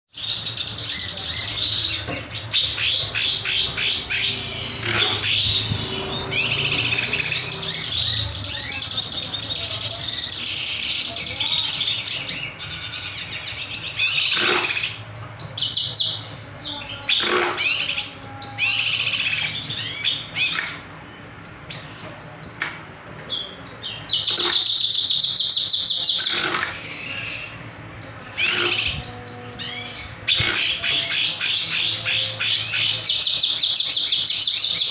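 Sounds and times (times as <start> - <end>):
buzzy bird trill: 16.8 - 34.9
bird singing rattling notes: 17.0 - 34.9.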